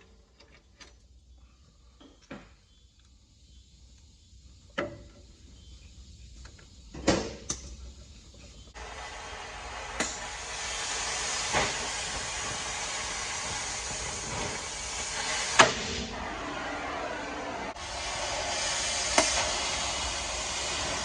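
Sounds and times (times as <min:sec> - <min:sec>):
steady hiss: 0:01.1 - 0:21.0.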